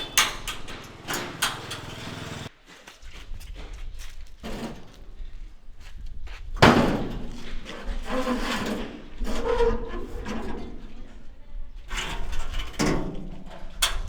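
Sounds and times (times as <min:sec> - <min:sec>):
knocks and clatter: 0:00.0 - 0:02.5.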